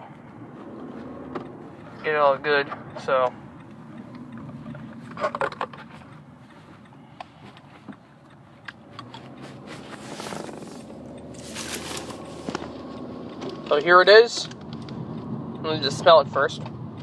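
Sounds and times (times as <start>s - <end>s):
scraping rustles: 9.2s - 12.8s.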